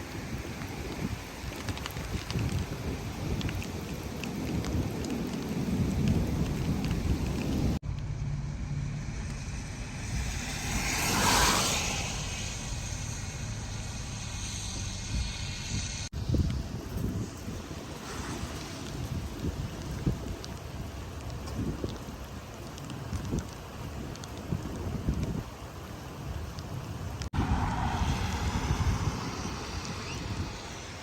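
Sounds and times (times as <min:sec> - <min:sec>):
heavy rain and wind: 0:00.0 - 0:31.0
raindrops ticking: 0:00.1 - 0:08.2, 0:16.4 - 0:27.3
low rumble: 0:04.4 - 0:22.2, 0:27.0 - 0:31.0
rush of noise: 0:07.7 - 0:20.6, 0:27.2 - 0:31.0.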